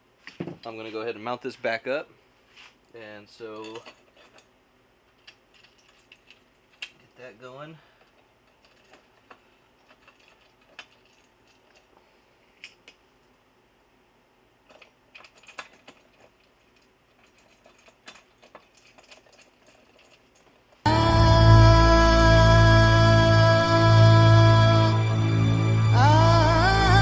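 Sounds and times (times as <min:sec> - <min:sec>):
hardware and hand tools clicking: 0:14.7 - 0:20.8
music: 0:20.9 - 0:27.0.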